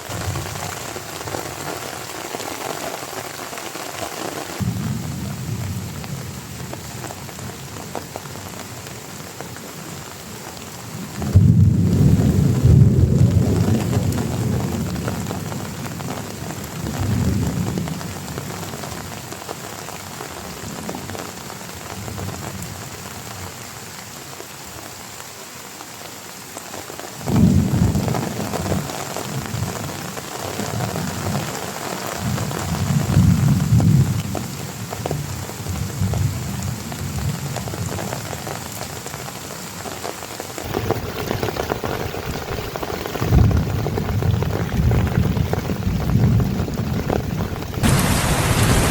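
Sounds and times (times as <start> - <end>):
heavy rain falling: 0.0 - 48.9
thunder rumbling: 11.3 - 15.6, 40.6 - 48.9.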